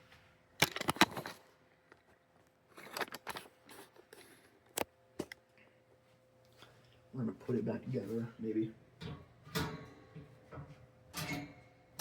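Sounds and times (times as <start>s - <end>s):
fan parts clicking and knocking: 9.0s - 11.6s.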